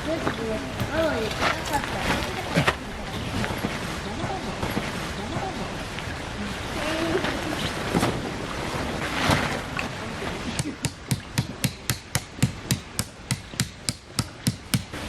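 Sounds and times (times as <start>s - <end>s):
sharp even knocks: 10.6s - 15.0s.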